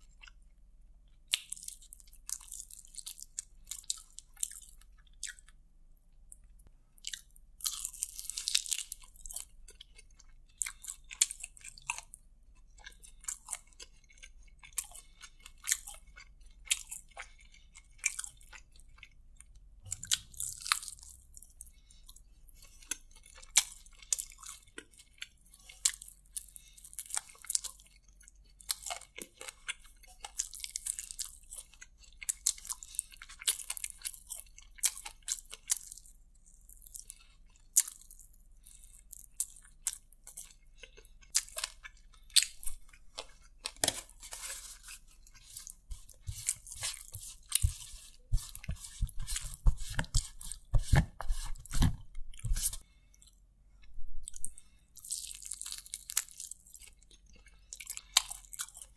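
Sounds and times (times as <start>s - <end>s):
chewing and crunching fried chicken: 0.0s - 58.9s.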